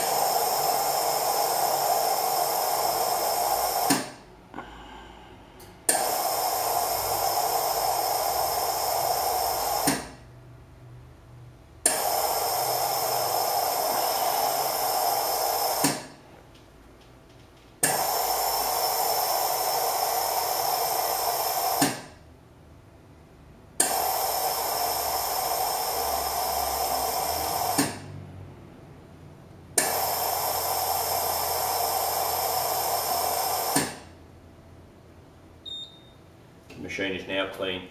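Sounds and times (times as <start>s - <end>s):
coffee machine rinse hissing: 0.0s - 4.8s, 5.8s - 10.2s, 11.8s - 16.2s, 17.8s - 22.2s, 23.8s - 28.2s, 29.8s - 34.2s.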